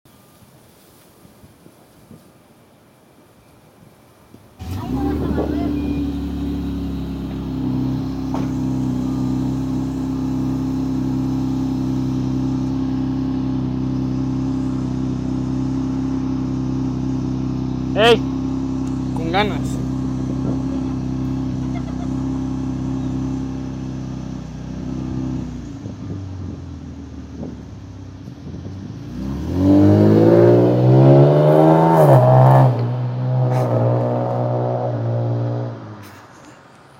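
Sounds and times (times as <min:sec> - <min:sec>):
car engine idling: 0:04.6 - 0:29.0.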